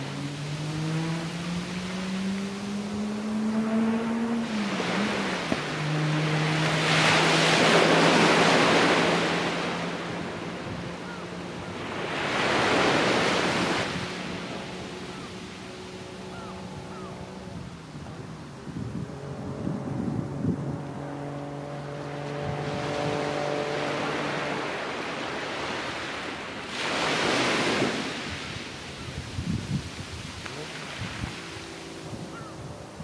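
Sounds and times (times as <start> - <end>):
sea waves breaking on beach: 0.0 - 18.8, 21.8 - 33.0
low engine hum: 0.0 - 33.0
wind noise: 16.2 - 24.9, 26.7 - 33.0.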